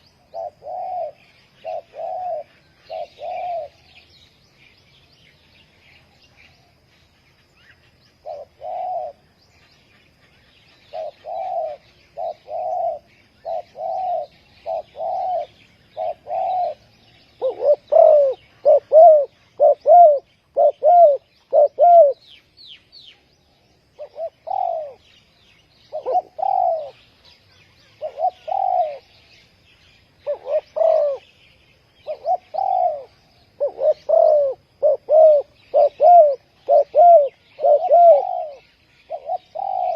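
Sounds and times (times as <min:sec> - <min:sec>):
dove cooing: 0:00.0 - 0:04.0, 0:08.2 - 0:09.4, 0:10.8 - 0:22.2, 0:24.0 - 0:25.1, 0:25.9 - 0:29.4, 0:30.2 - 0:31.4, 0:32.0 - 0:39.9
faint small birds chirping: 0:00.0 - 0:39.9.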